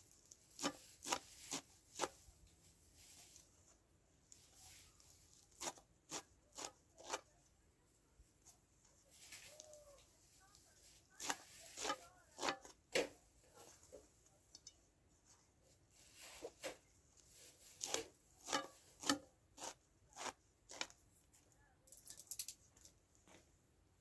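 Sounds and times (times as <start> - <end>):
knife cutting food: 0.2 - 2.2, 5.3 - 7.3, 11.1 - 13.1, 17.7 - 21.0.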